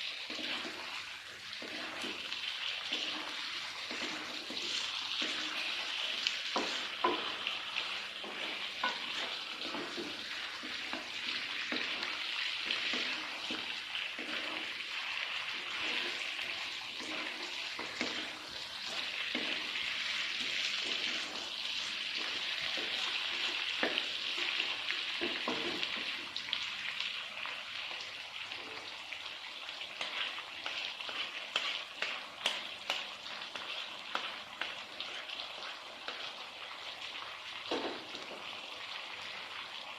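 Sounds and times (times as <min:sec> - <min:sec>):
food sizzling in a frying pan: 0:00.0 - 0:39.9
spatula clicking against pan: 0:31.5 - 0:34.8.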